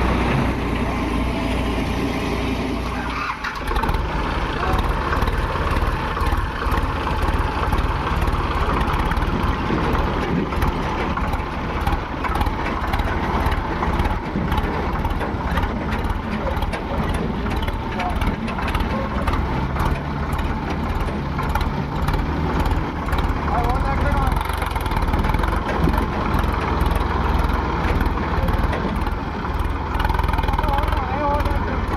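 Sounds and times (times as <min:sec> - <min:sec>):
diesel engine running: 0:00.0 - 0:31.9
faint voices: 0:04.5 - 0:05.8.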